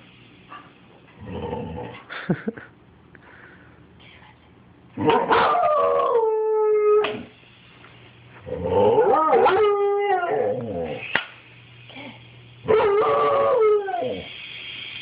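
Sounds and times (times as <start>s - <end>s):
dog howling: 5.0s - 7.3s, 8.5s - 11.0s, 12.7s - 14.3s.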